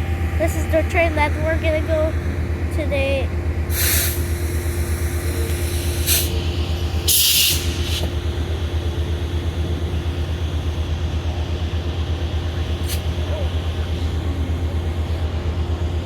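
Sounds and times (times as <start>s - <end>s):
diesel locomotive idling: 0.0s - 16.0s
air hisses: 3.7s - 6.4s, 7.0s - 8.1s.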